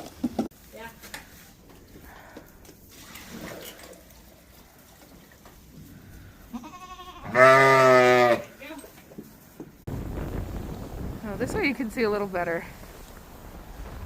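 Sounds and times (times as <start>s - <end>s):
livestock bleating: 6.5s - 8.5s.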